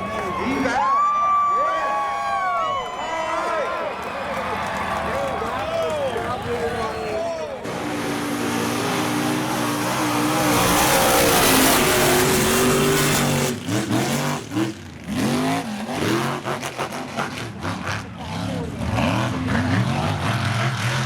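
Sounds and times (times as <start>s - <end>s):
truck engine revving: 6.3s - 21.0s.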